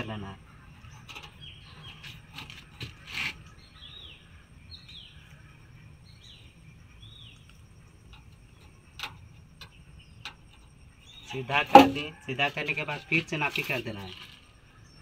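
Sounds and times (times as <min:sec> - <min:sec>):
bird chirping: 0:00.0 - 0:15.0
sharp knock: 0:11.7 - 0:12.1.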